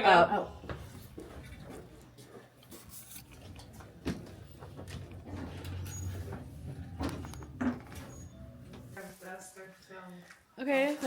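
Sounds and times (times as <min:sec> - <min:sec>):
elevator humming: 0:03.9 - 0:09.0.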